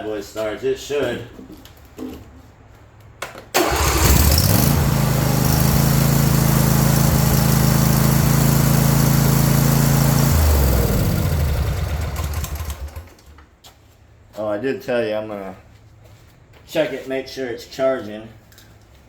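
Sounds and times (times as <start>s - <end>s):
mower engine running: 3.6s - 13.3s.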